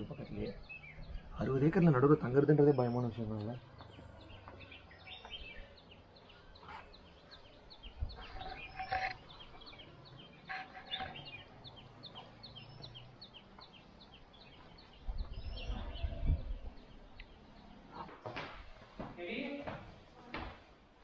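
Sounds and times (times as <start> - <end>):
bird chirping high: 3.9 - 18.2
louder bird calls: 4.1 - 17.0.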